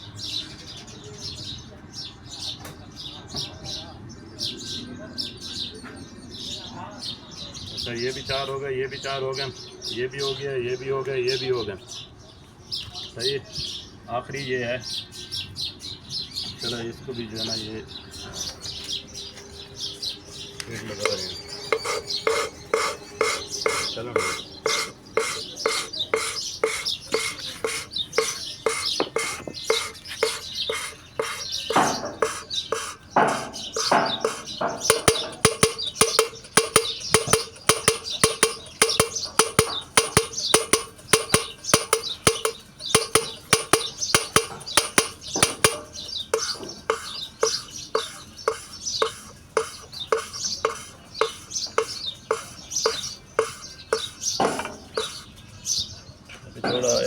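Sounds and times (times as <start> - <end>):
valve lapping scraping: 20.8 - 55.3.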